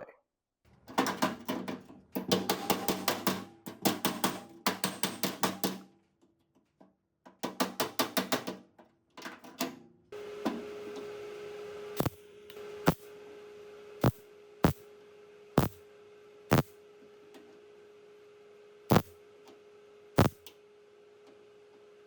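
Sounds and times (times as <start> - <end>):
steady hum: 12.0 - 13.1, 14.0 - 14.9, 15.6 - 15.8, 16.5 - 16.8, 18.9 - 19.2, 20.2 - 20.4
clicks: 18.9 - 19.1
hammer blows on sheet steel: 18.9 - 19.1.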